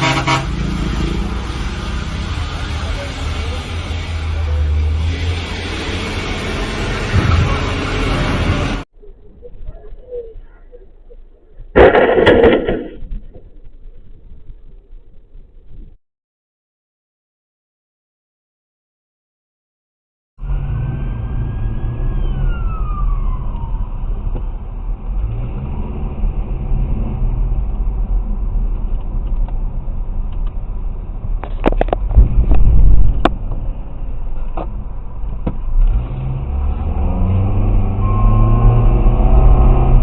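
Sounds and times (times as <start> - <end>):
car road noise and engine rumble: 0.0 - 16.0, 20.4 - 40.0
sharp knocks and bangs: 11.8 - 13.4.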